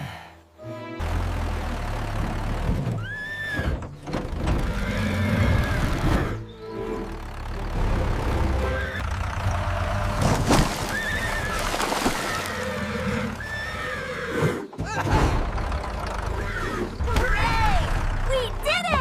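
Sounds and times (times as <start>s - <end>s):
cartoon horse whinnies: 3.0s - 3.8s.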